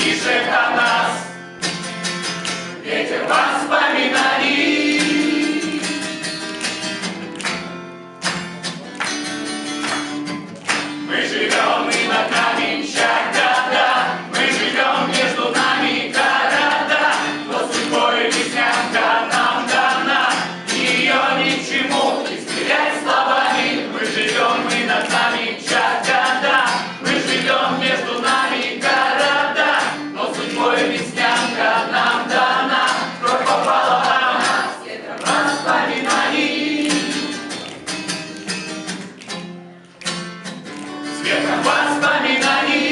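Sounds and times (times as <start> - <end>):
group of voices singing: 0.0 - 1.4, 2.7 - 6.2, 11.0 - 37.7, 41.2 - 42.9
strummed guitar: 0.0 - 42.9.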